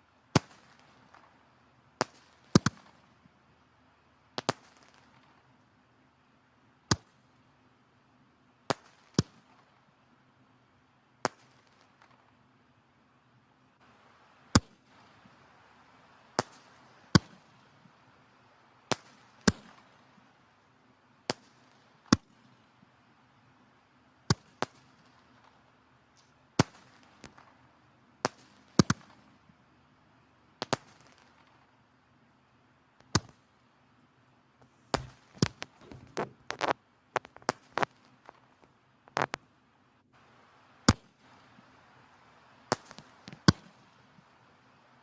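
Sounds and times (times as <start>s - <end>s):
faint fire hiss: 0.0s - 45.0s
firewood crackling and popping: 26.2s - 27.6s, 33.0s - 33.4s, 34.6s - 39.5s, 42.6s - 44.3s.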